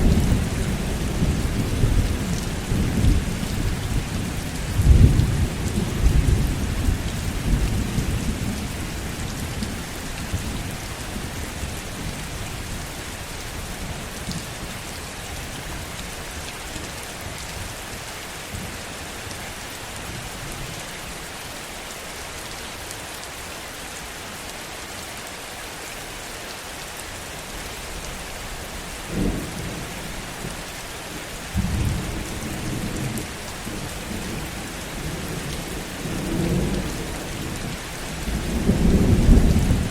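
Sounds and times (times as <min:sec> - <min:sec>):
rolling thunder: 0:00.0 - 0:09.4, 0:31.5 - 0:39.9
heavy rain: 0:00.0 - 0:39.9.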